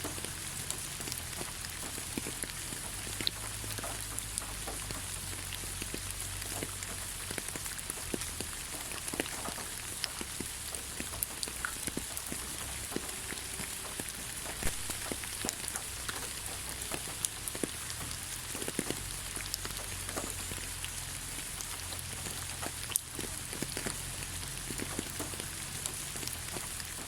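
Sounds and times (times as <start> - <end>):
rain falling on ground: 0.0 - 27.0
raindrops ticking: 0.0 - 27.0.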